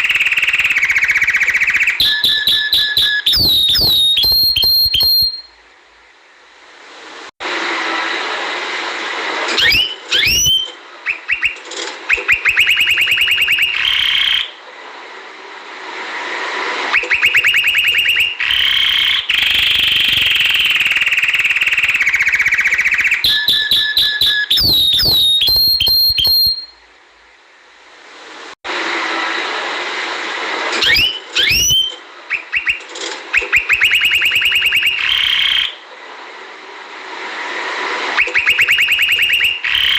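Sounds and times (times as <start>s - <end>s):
canary singing: 0.0s - 5.6s, 9.6s - 14.6s, 16.9s - 26.7s, 30.8s - 32.8s, 33.4s - 35.8s
steady background hiss: 3.8s - 10.1s, 10.7s - 23.2s, 26.6s - 39.9s.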